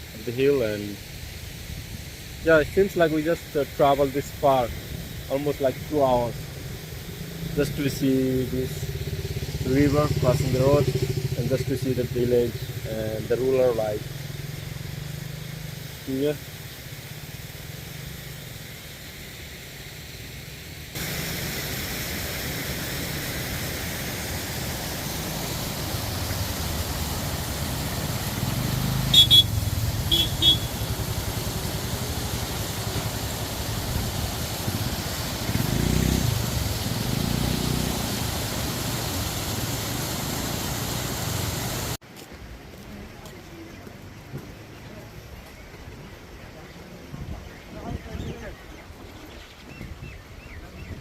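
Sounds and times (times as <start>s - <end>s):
motorcycle engine: 6.4s - 18.7s, 23.1s - 42.0s
horn short beeps: 29.1s - 30.7s.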